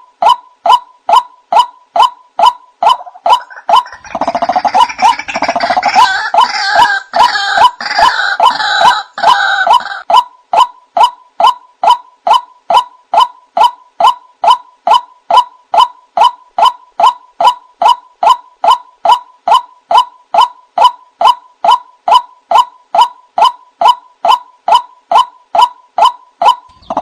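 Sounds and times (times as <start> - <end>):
harsh gurgling bird croaks: 2.9 - 10.0.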